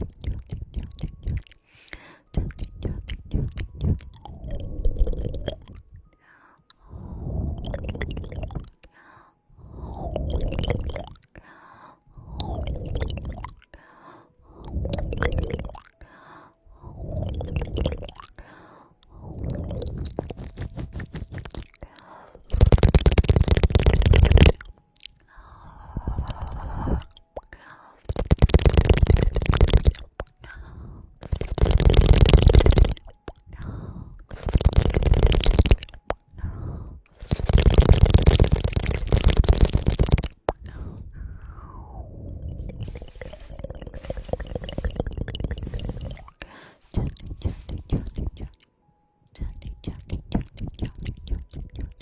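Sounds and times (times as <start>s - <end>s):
wet tongue clicks: 0.0s - 5.9s, 7.5s - 8.9s, 10.1s - 11.4s, 12.4s - 13.8s, 14.6s - 16.0s, 17.1s - 18.4s, 19.4s - 25.2s, 26.0s - 30.6s, 31.2s - 40.9s, 42.4s - 48.7s, 49.4s - 52.0s
scratching on microphone: 22.5s - 24.6s, 42.6s - 48.6s.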